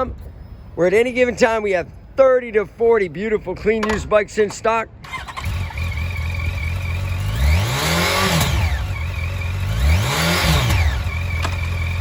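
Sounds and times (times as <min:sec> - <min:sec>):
motorcycle engine idling and revving: 0:05.0 - 0:12.0.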